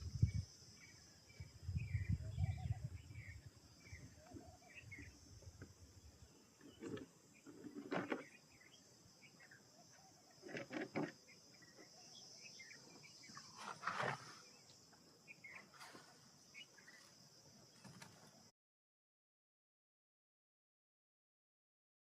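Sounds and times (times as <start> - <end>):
bird chirps: 0.0 - 10.6, 11.2 - 17.1
high insect drone: 0.0 - 18.5.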